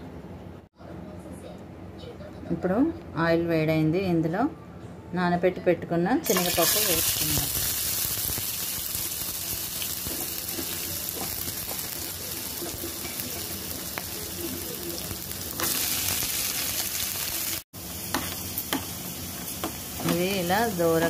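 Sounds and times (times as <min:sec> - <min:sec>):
lentils sizzling in hot oil: 0:06.2 - 0:21.0.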